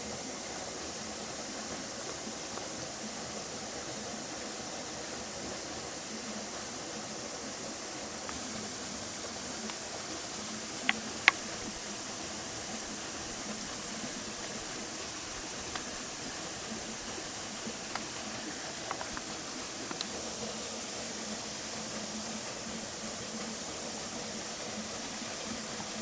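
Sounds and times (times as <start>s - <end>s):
campfire crackling and popping: 8.3s - 20.3s.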